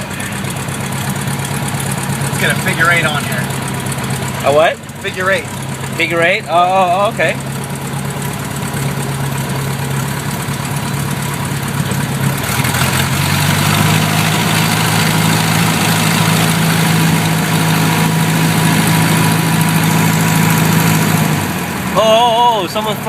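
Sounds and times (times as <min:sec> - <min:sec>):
small plane engine and propeller: 0:00.0 - 0:23.0.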